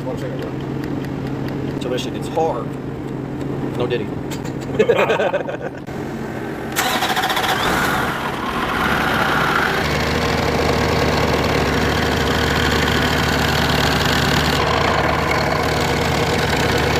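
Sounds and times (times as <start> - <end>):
diesel truck engine idling: 6.3 - 16.9.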